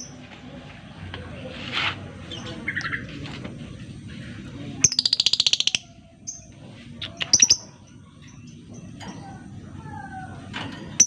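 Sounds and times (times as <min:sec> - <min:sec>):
lovebird high chirps: 0:04.8 - 0:07.8.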